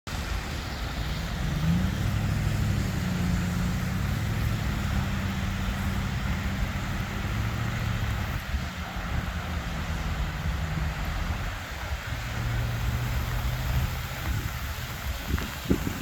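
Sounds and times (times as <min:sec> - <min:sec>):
diesel locomotive engine drone: 0:00.1 - 0:16.0.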